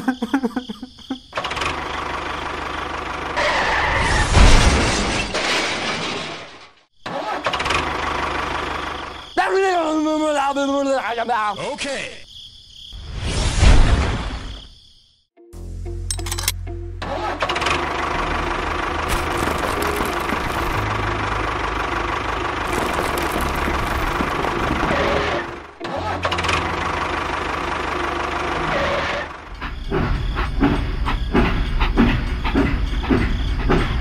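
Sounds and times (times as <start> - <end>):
engine running: 1.5 - 3.6, 15.8 - 33.2
engine knocking: 19.1 - 28.6.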